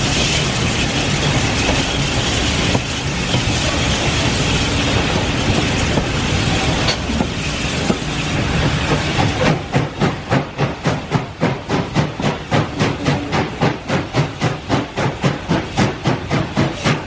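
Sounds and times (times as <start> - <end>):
steam locomotive chuffing: 0.0 - 17.0
train rumbling: 0.0 - 17.0.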